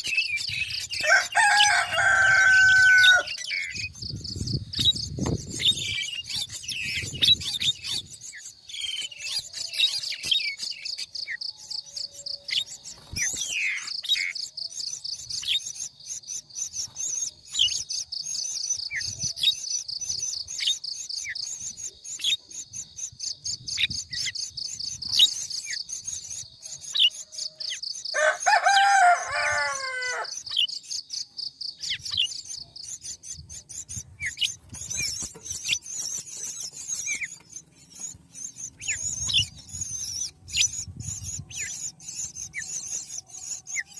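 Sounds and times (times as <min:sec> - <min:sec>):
bird chirps: 0:00.0 - 0:43.9
high insect trill: 0:00.8 - 0:05.8
rooster crowing: 0:00.9 - 0:03.7, 0:28.1 - 0:30.4.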